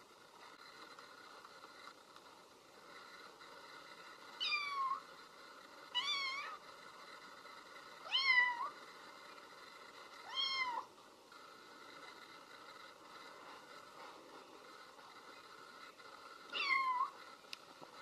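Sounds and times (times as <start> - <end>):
cat meowing: 10.3 - 10.9, 16.6 - 17.1.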